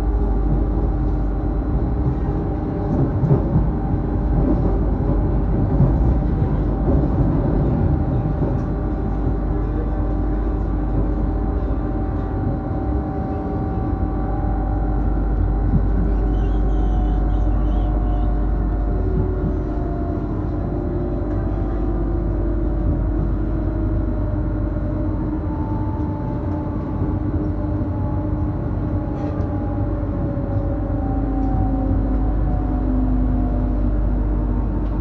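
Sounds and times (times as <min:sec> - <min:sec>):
constant whine of held tones: 0:00.0 - 0:35.0
train low rumble: 0:00.0 - 0:35.0.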